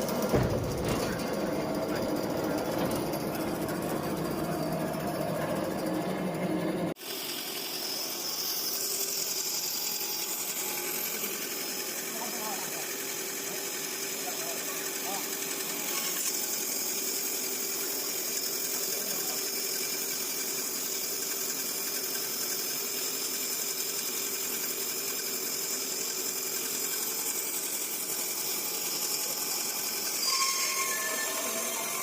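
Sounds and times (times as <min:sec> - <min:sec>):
band saw running: 0:00.0 - 0:32.0.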